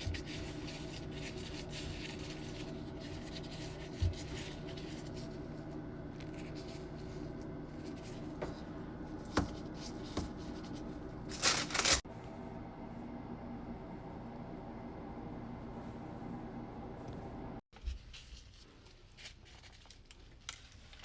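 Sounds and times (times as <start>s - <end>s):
rubbing and handling sounds: 0.0s - 12.0s, 17.7s - 21.0s
room tone hum: 0.0s - 21.0s.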